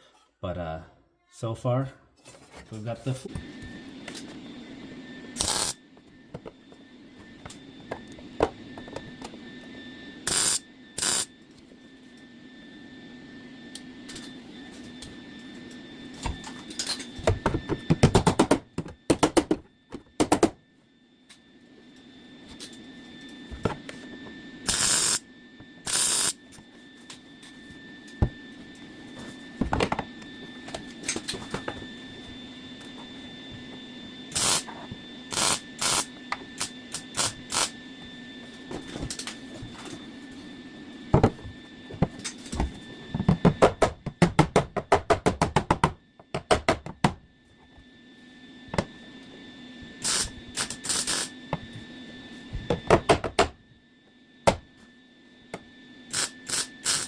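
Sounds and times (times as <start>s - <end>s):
steady low hum: 0.0s - 57.0s
welder crackling: 5.4s - 5.8s, 10.3s - 11.3s, 24.7s - 25.2s, 25.9s - 26.4s, 34.3s - 34.7s, 35.3s - 37.7s, 50.0s - 51.3s, 56.1s - 57.0s.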